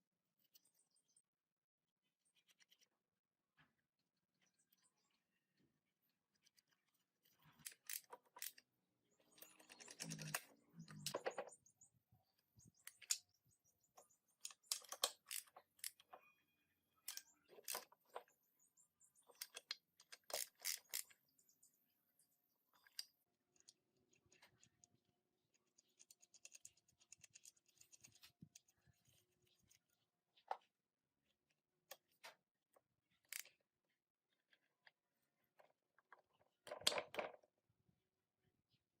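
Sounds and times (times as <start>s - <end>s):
metal parts clicking and knocking: 6.3s - 11.6s, 12.7s - 13.4s, 14.0s - 16.4s, 17.0s - 18.3s, 19.2s - 21.2s, 22.7s - 28.7s.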